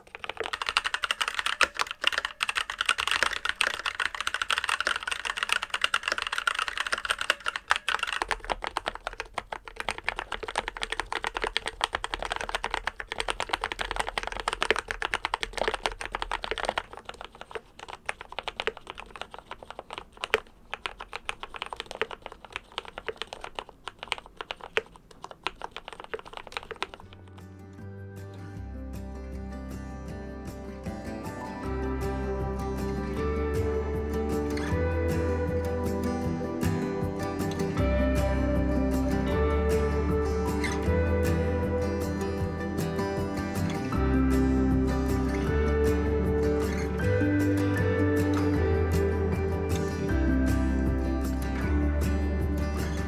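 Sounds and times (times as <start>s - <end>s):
fast typing on mechanical keyboard: 0.0s - 27.4s, 32.4s - 53.0s.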